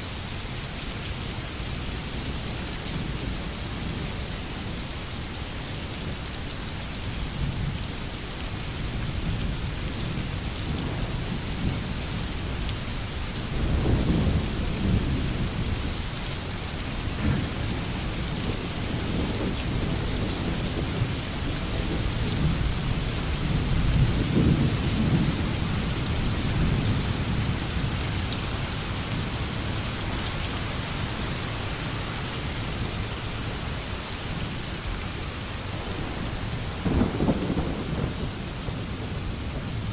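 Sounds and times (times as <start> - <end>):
steady rain: 0.0 - 39.9
distant thunder rolling: 35.8 - 39.9.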